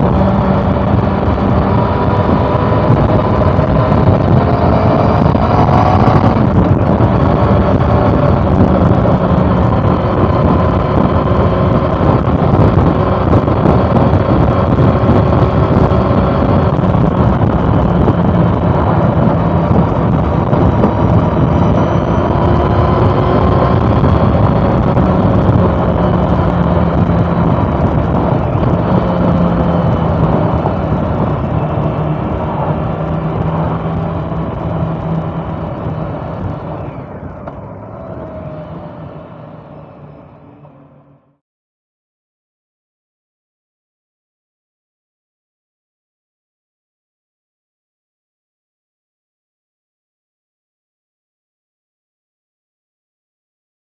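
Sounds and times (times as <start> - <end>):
motorcycle engine running: 0.0 - 41.4
road and wind noise: 0.0 - 41.4.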